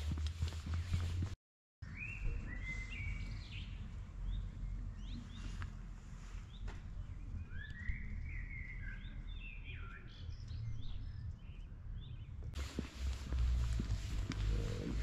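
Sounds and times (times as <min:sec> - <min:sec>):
songbirds chirping and singing: 0:01.8 - 0:12.6.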